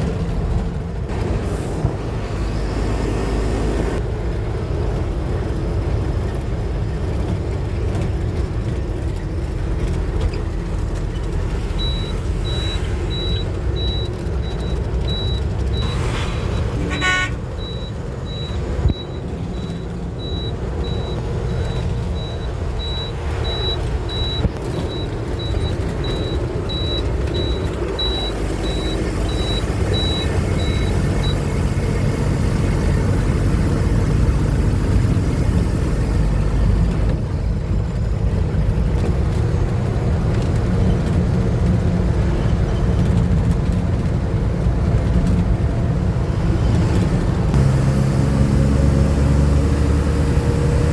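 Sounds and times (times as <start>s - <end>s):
truck engine rumbling: 0.0s - 50.9s
high electronic beeps: 11.8s - 32.1s.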